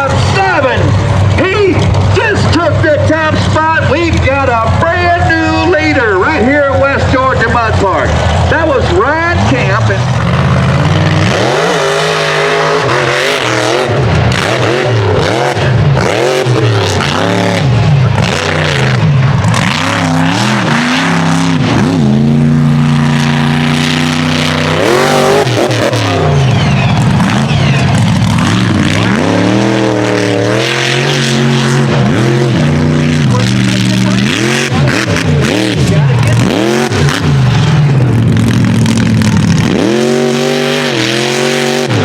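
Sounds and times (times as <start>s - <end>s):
truck engine revving hard: 0.0s - 42.0s.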